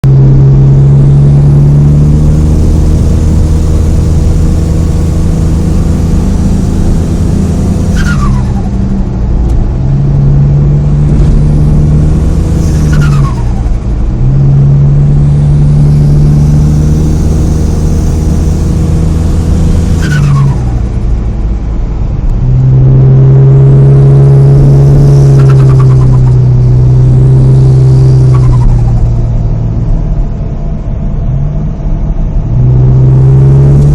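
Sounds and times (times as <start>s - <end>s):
car engine revving: 0.0s - 33.9s
turbo whistle: 4.3s - 8.8s, 12.5s - 13.8s, 19.6s - 20.9s, 25.0s - 26.4s.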